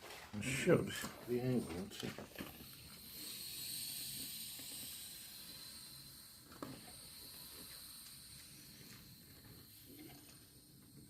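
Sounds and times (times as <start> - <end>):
air hissing out of tyre: 2.3 - 11.0.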